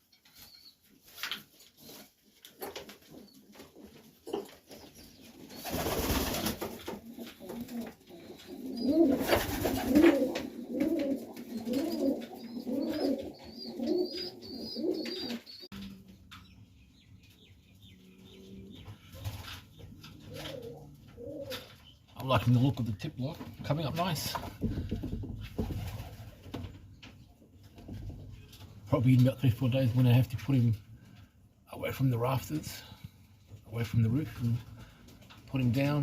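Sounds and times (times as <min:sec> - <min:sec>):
pigeon cooing: 0:04.8 - 0:16.2, 0:17.8 - 0:21.9.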